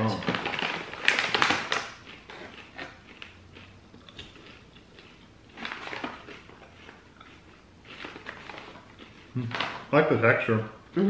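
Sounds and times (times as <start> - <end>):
plastic pouch crinkling: 0.0 - 2.3
popcorn crunching: 0.0 - 10.5.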